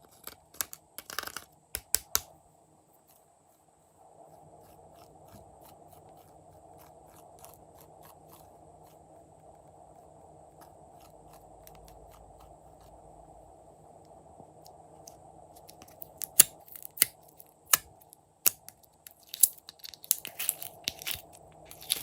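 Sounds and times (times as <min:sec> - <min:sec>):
low steady hiss: 0:00.0 - 0:22.0
slime crackling and clicking: 0:15.7 - 0:17.1.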